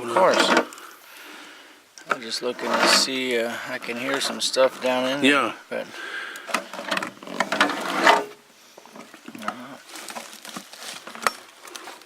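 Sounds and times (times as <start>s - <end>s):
small items rattling: 0.0s - 0.8s, 9.0s - 12.0s.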